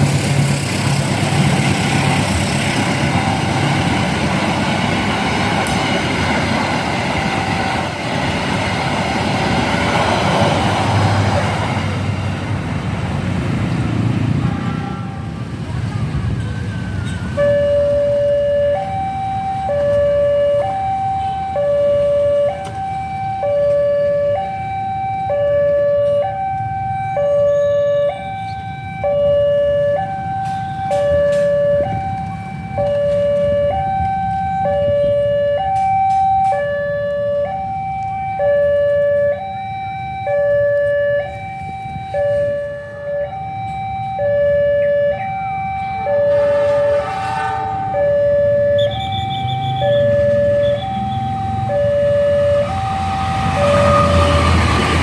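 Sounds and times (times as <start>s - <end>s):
level-crossing two-tone alarm: 17.2s - 55.0s.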